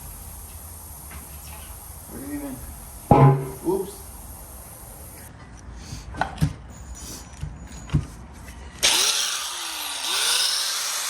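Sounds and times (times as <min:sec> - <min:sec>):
angle grinder cutting tire: 0:08.8 - 0:11.0.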